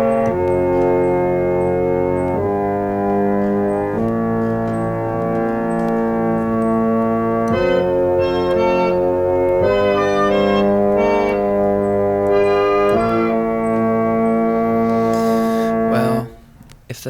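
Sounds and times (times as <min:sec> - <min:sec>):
organ chords: 0:00.0 - 0:17.0.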